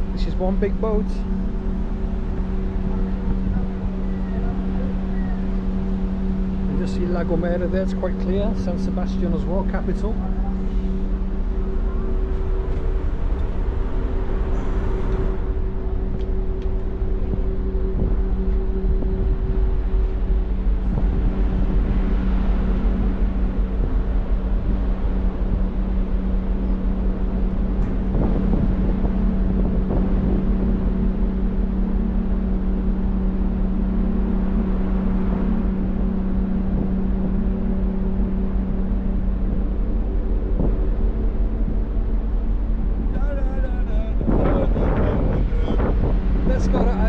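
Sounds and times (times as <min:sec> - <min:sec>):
ferry engines droning: 0:00.0 - 0:47.0.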